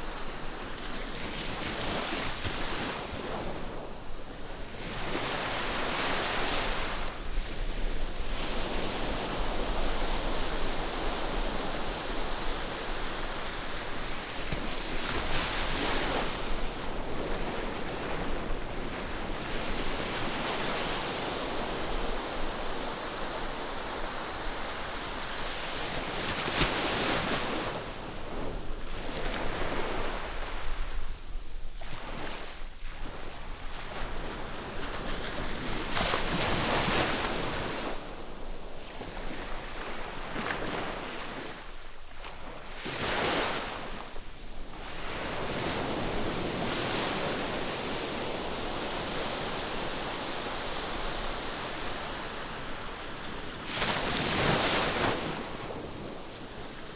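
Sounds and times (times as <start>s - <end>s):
ocean waves breaking on shore: 39.0s - 56.9s.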